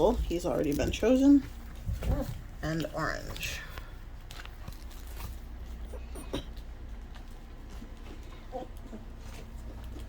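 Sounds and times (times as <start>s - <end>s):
puppies squeaking and whimpering: 1.9s - 2.5s, 8.4s - 9.2s.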